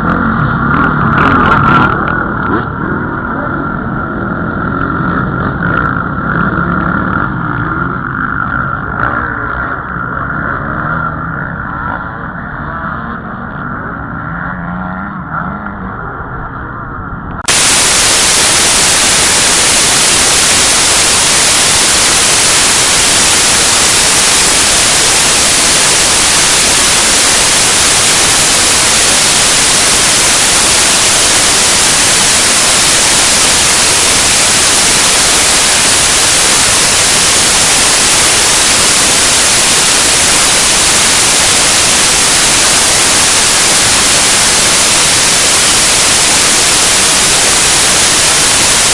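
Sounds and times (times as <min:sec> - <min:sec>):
static hiss: 0:17.4 - 0:48.9.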